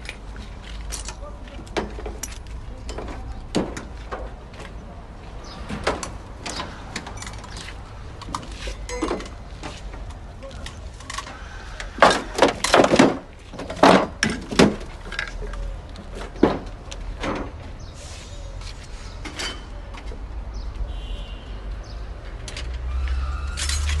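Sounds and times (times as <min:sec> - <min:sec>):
sharp knocks and clatters: 0:12.0 - 0:15.4, 0:16.1 - 0:17.7.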